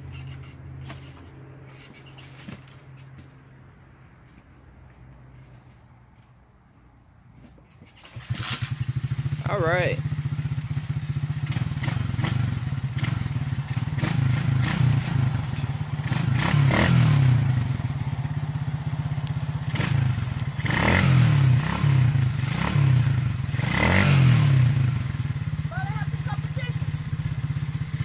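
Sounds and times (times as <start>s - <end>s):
dirt bike engine revving: 8.0s - 28.0s.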